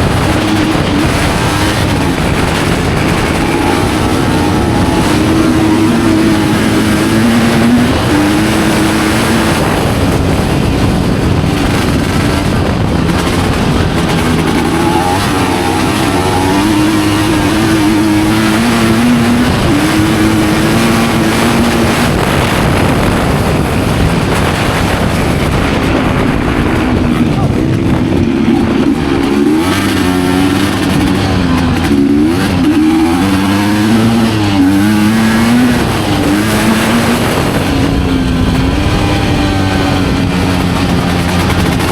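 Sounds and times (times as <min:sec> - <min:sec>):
motorcycle engine revving: 0:00.0 - 0:41.9
steady rushing noise: 0:00.0 - 0:41.9.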